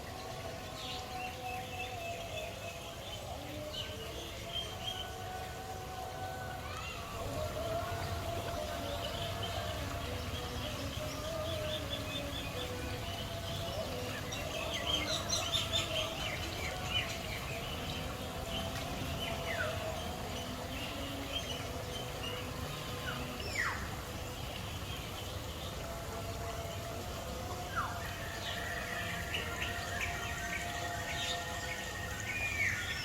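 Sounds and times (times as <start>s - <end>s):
birds chirping and calling: 6.8s - 33.0s.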